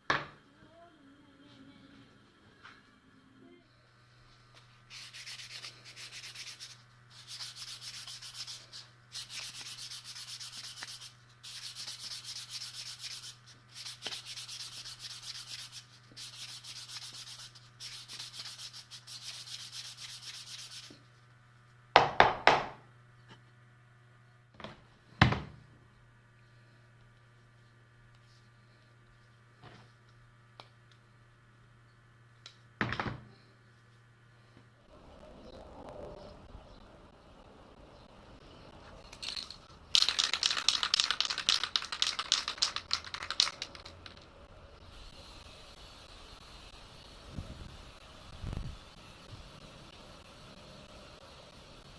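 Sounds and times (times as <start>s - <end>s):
sandpaper rubbing on wood: 4.9s - 21.0s.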